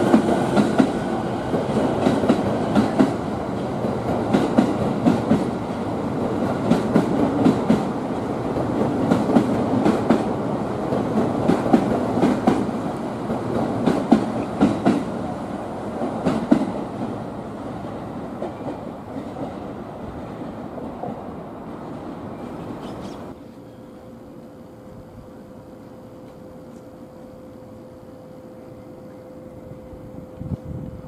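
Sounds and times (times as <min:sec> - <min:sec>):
train wheels clattering over rails: 0:00.0 - 0:23.4.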